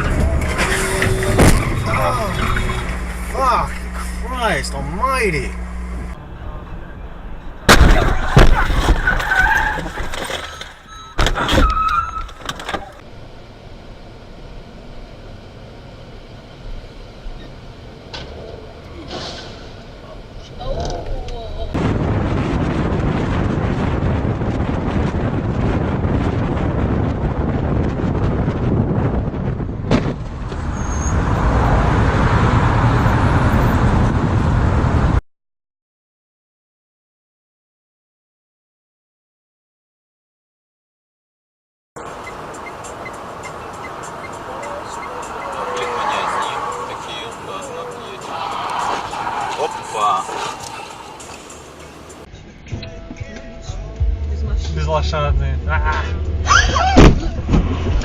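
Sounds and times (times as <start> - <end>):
car crash impacts: 0.0 - 2.8, 7.6 - 12.9, 29.8 - 30.4
vehicle road and wind noise: 0.0 - 35.2, 42.0 - 58.0.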